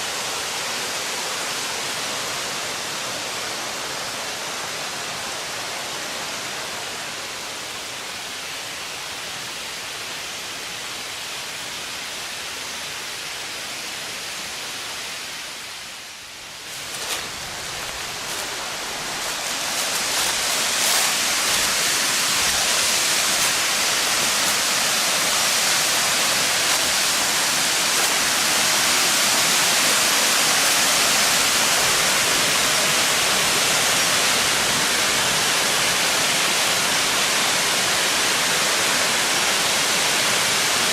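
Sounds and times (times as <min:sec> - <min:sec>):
waterfall rushing: 0:13.8 - 0:40.9.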